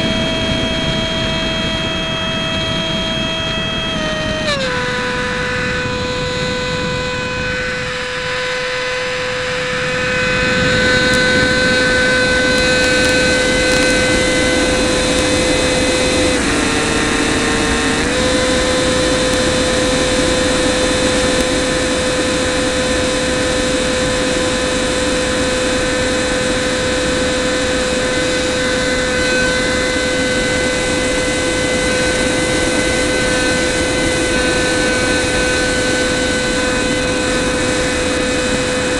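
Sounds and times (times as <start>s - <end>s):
electric ducted fan whining: 0.0s - 38.9s.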